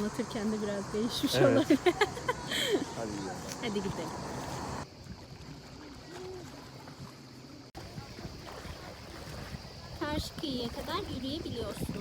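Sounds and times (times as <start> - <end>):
outdoor background hiss: 0.0 - 5.6.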